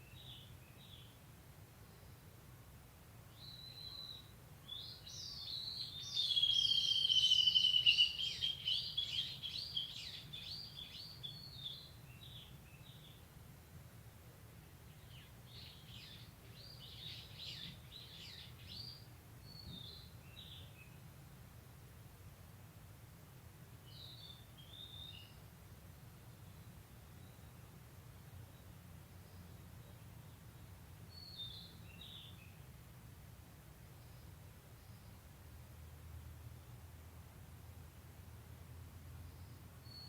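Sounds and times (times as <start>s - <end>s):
bush warbler singing: 0.0s - 1.2s, 3.3s - 13.3s, 14.6s - 21.1s, 23.8s - 25.6s, 26.2s - 32.8s, 39.2s - 40.0s
faint low hum: 0.0s - 40.0s.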